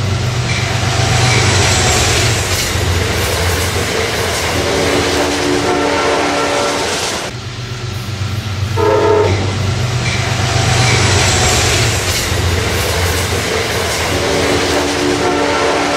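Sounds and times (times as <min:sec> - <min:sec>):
passing train rumble and rail noise: 0:00.0 - 0:15.9
train horn: 0:04.7 - 0:07.3, 0:08.8 - 0:09.6, 0:14.7 - 0:15.9.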